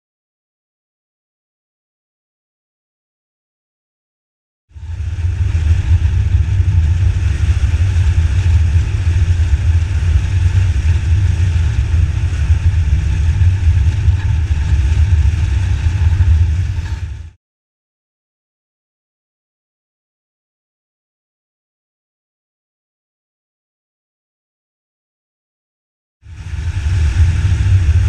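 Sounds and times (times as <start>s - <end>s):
motorcycle engine rumble: 4.8s - 17.4s.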